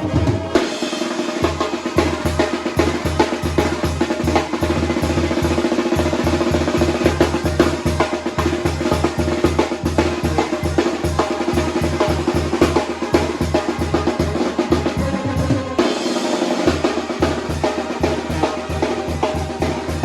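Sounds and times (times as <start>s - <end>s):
snare drum rhythm: 0.0s - 20.0s
brass and wind playing: 6.6s - 20.0s.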